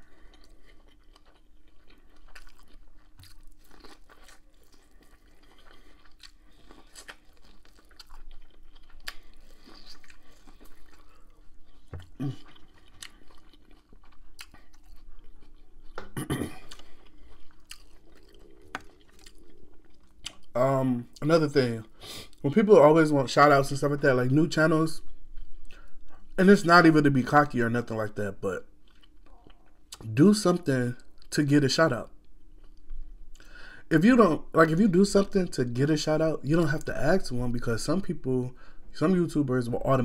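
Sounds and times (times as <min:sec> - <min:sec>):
chewing corn on the cob: 0:00.0 - 0:20.6.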